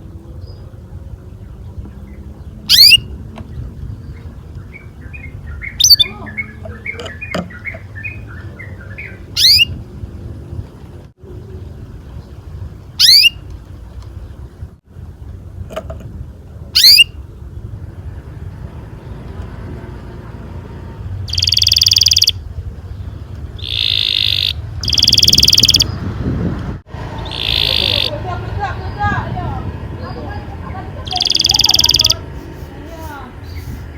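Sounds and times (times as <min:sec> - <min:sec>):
canary chirping and trilling: 0:02.6 - 0:03.2, 0:04.7 - 0:09.8, 0:13.0 - 0:13.4, 0:16.8 - 0:17.1, 0:21.3 - 0:22.4, 0:23.6 - 0:26.0, 0:27.1 - 0:29.2, 0:30.0 - 0:32.4.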